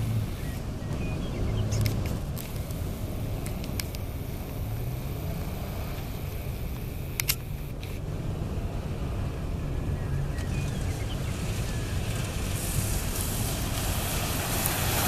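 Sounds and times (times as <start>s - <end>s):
car engine revving: 0.0s - 15.0s
sharp clicks: 1.7s - 8.0s.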